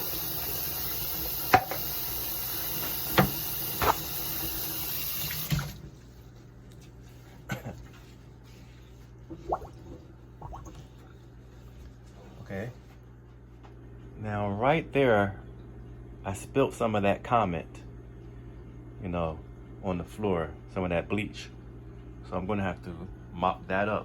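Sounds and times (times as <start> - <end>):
water running from a tap: 0.0 - 5.8.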